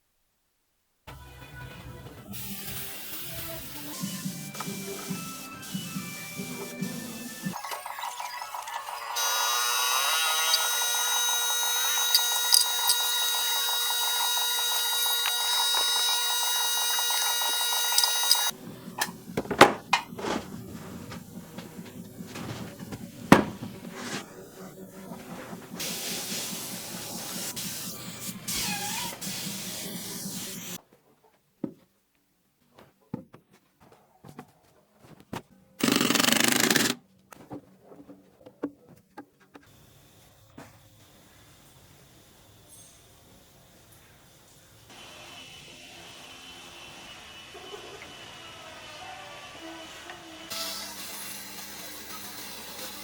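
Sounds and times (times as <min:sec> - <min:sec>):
power tool motor whining: 0:09.2 - 0:18.6, 0:35.8 - 0:37.0
knocks and handling clatter: 0:19.0 - 0:24.0.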